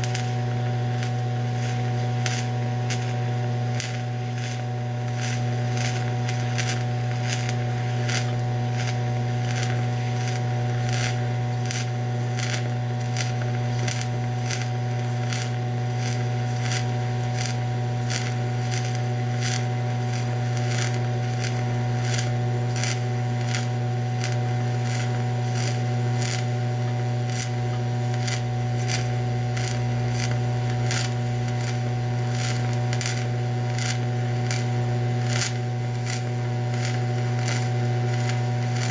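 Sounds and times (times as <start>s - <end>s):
welding arc humming and crackling: 0.0s - 38.9s.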